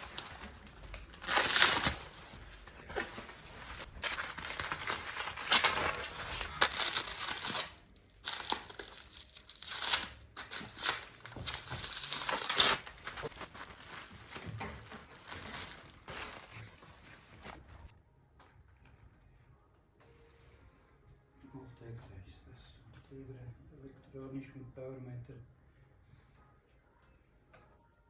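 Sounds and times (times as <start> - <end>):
packaging crinkling and tearing: 0.0 - 17.4.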